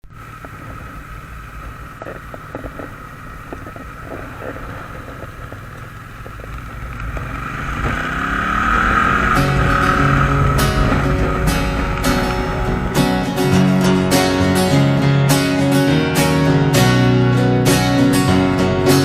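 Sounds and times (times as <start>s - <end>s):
wind noise: 0.0s - 14.8s
vehicle engine running: 0.0s - 19.0s
music: 8.8s - 19.0s.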